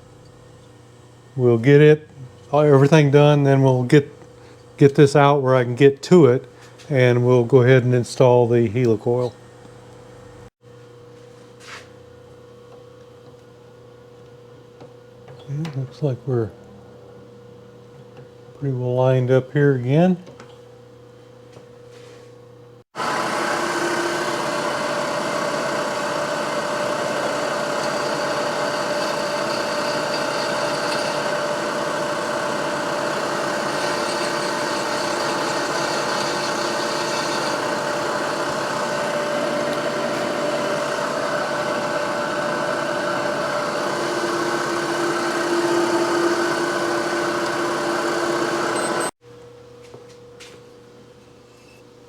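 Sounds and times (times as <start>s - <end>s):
drill motor running: 23.0s - 49.2s.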